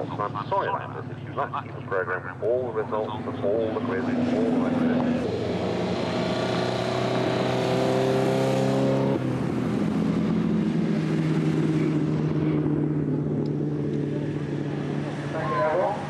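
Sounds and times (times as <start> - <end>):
racing car engine high revs: 3.5 - 16.0.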